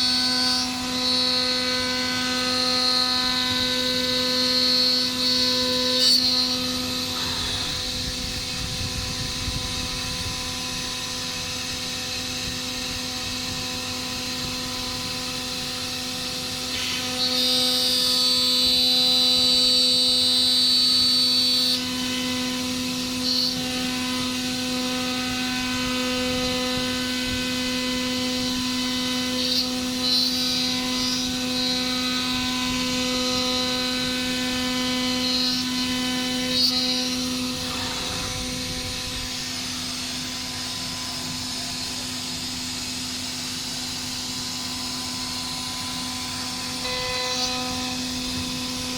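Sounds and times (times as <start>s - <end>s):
machine spindle whining: 0.0s - 48.9s
machine cutting bursts: 12.1s - 48.9s.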